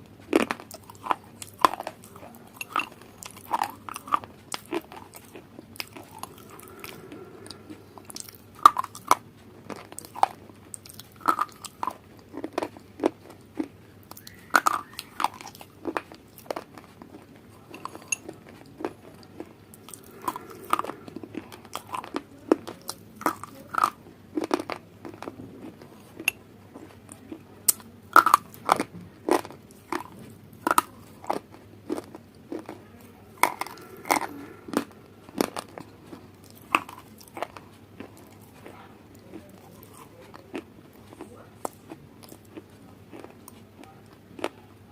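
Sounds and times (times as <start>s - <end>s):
person chewing crunchy food: 0.0s - 44.9s.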